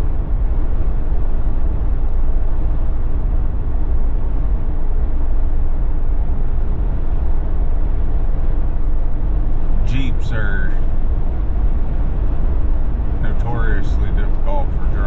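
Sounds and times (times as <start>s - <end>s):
low rumble: 0.0s - 15.0s
road and tyre noise: 0.0s - 15.0s.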